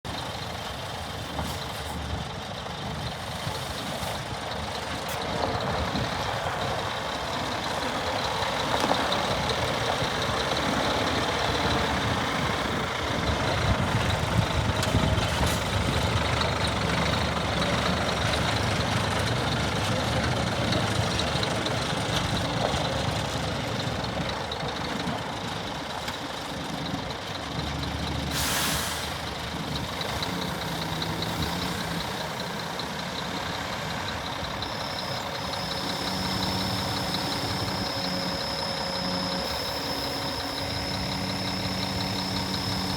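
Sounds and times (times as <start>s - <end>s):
diesel truck engine running: 0.0s - 42.9s
air brake hiss: 28.3s - 29.3s.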